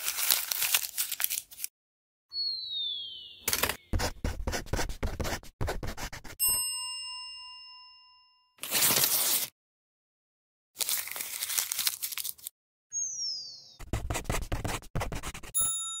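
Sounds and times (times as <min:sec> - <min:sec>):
paper crumpling: 0:00.0 - 0:01.7, 0:08.6 - 0:09.5, 0:10.8 - 0:12.5
paper ripping: 0:00.0 - 0:01.7, 0:08.6 - 0:09.5, 0:10.8 - 0:12.5
falling whistle: 0:02.3 - 0:03.9, 0:12.9 - 0:13.8
bell ding: 0:06.4 - 0:08.6, 0:15.6 - 0:16.0.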